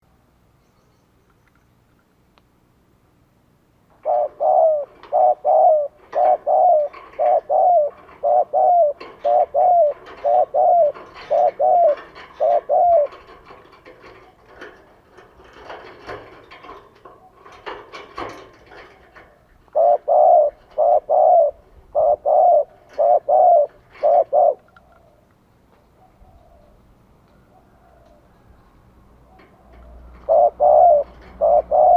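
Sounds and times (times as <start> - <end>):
dove cooing: 4.0 - 14.6, 18.6 - 25.3, 25.9 - 28.4, 29.2 - 31.9.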